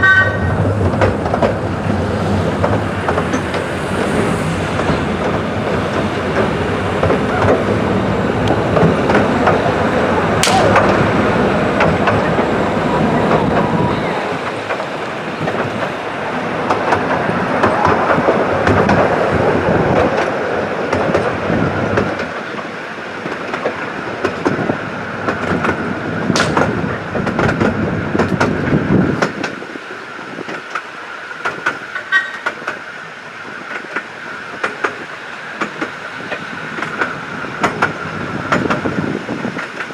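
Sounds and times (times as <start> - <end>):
train wheels rumbling and clattering: 0.0 - 39.9
sharp clicks: 26.4 - 26.8.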